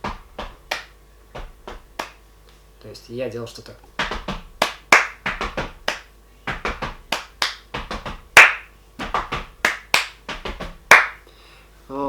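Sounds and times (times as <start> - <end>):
hand percussion claps and slaps: 0.0 - 2.2, 4.0 - 11.2.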